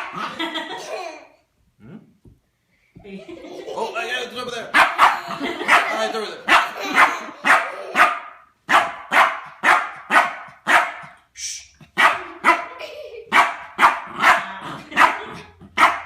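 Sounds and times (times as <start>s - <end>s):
dog barking: 4.7s - 11.2s, 12.0s - 16.0s.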